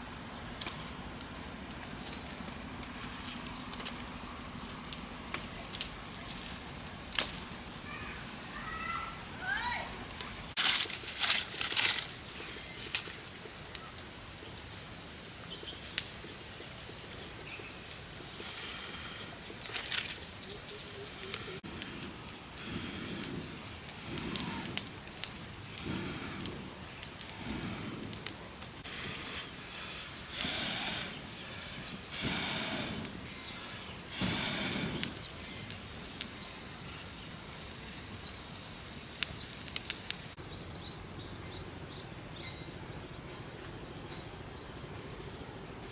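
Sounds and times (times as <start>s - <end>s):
rustling: 9.9s - 13.9s, 19.4s - 37.0s
rising bird chirps: 19.1s - 40.4s
high insect-like tone: 35.2s - 40.4s.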